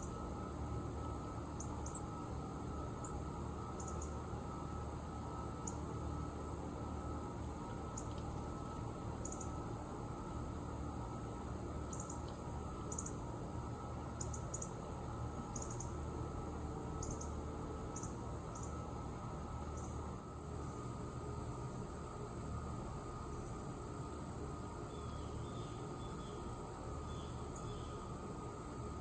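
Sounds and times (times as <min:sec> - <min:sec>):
high-pitched insect drone: 0:01.0 - 0:04.2, 0:09.2 - 0:09.6, 0:12.9 - 0:13.2.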